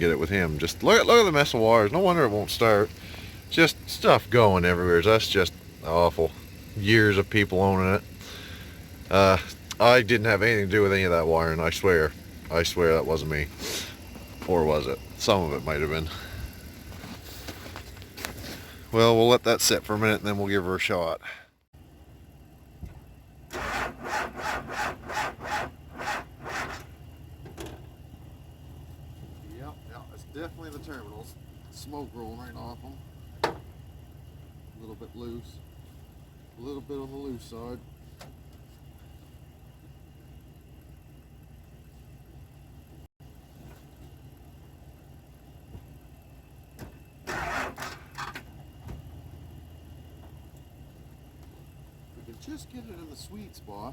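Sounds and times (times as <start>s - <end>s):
engine idling: 0.0s - 53.9s
starter cranking an engine: 23.5s - 27.8s, 47.2s - 48.7s.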